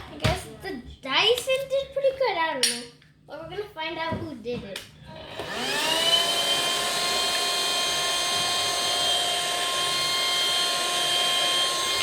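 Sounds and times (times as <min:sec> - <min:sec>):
handheld vacuum cleaner whining: 0:05.1 - 0:12.0.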